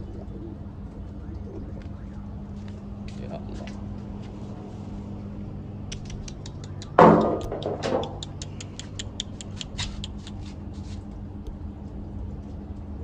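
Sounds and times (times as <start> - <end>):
low steady hum: 0.0 - 13.0
quick light ticks: 5.9 - 10.6.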